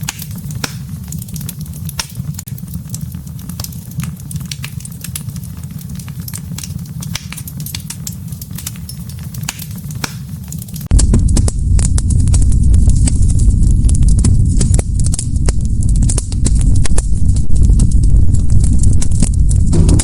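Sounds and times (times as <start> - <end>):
campfire crackling: 0.0 - 20.0
deep loud rumble: 10.9 - 20.0.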